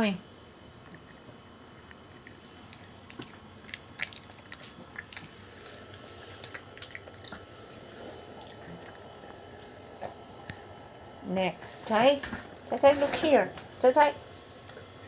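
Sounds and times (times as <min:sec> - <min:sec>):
dog chewing crunchy food: 0:00.8 - 0:12.7.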